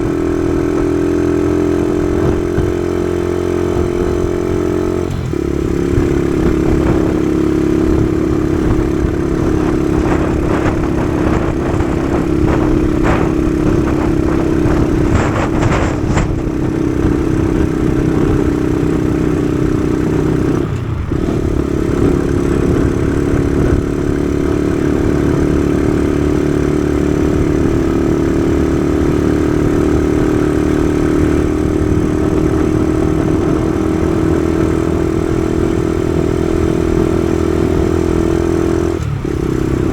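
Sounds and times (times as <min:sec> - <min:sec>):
motorcycle engine running: 0:00.0 - 0:39.9
low rumble: 0:05.0 - 0:25.4.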